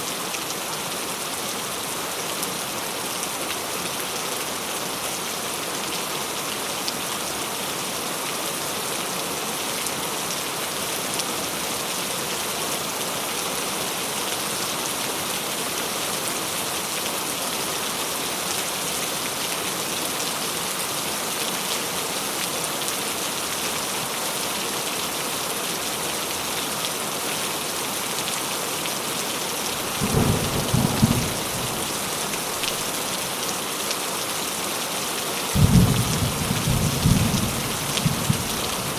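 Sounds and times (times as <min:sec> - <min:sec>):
steady rain hiss: 0:00.0 - 0:38.9
low rumble of thunder: 0:29.9 - 0:32.1, 0:35.6 - 0:38.9.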